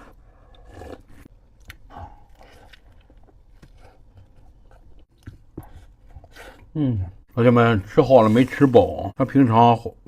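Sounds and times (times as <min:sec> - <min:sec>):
man chewing and swallowing: 0:00.0 - 0:07.3.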